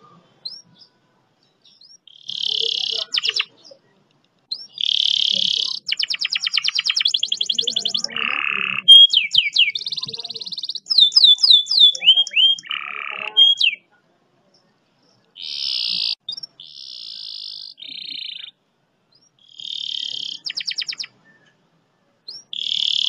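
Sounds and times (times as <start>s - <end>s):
canary singing: 0.4s - 3.9s, 4.5s - 13.9s, 14.5s - 21.6s, 22.3s - 23.0s.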